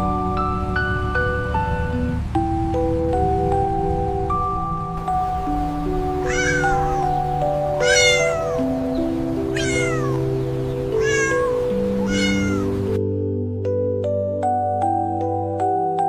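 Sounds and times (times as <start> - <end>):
gentle background music: 0.0 - 16.0
cat meowing: 6.2 - 12.9.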